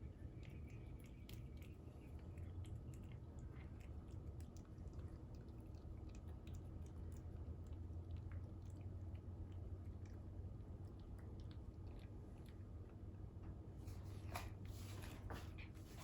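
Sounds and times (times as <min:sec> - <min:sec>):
cat chewing with wet clicks: 0:00.0 - 0:13.8
steady low hum: 0:00.0 - 0:16.0.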